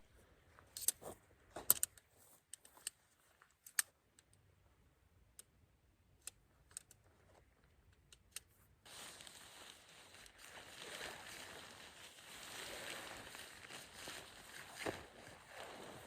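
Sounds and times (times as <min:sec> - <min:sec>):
small objects clicking and tapping: 0:01.6 - 0:04.4.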